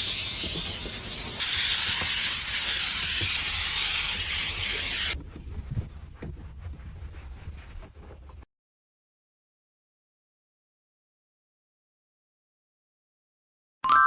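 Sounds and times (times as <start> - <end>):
spray hissing: 0.0 - 5.2.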